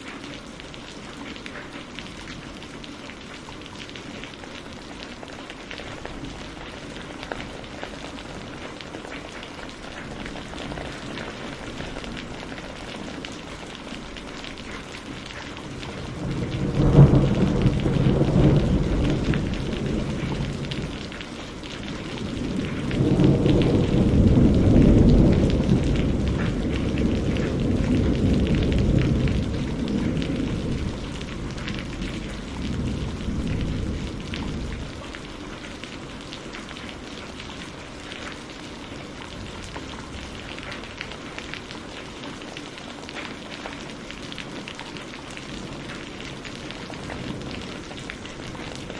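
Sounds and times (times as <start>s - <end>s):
steady rain falling: 0.0s - 48.9s
thunder rolling: 15.7s - 21.2s, 21.8s - 35.1s.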